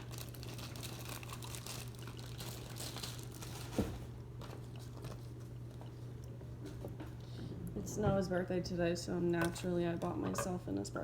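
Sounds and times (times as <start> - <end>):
packaging crinkling: 0.0 - 5.2.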